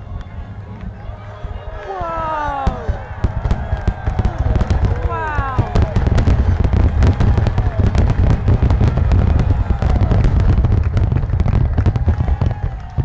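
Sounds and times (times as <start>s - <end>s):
deep rumble: 0.0s - 13.0s
fireworks crackling: 1.4s - 13.0s.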